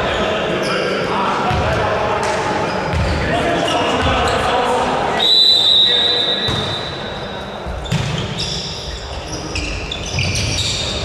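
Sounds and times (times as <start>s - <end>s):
referee's whistle blast: 5.2s - 7.2s
shoe squeaks on court: 5.9s - 11.0s.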